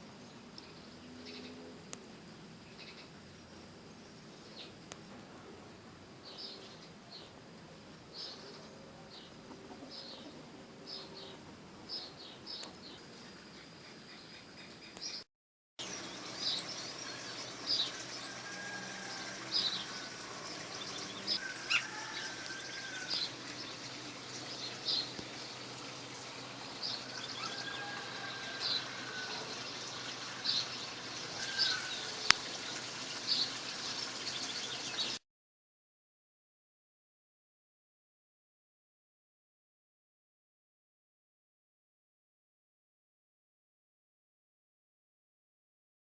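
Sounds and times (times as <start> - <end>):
bird chirping: 15.8 - 35.2.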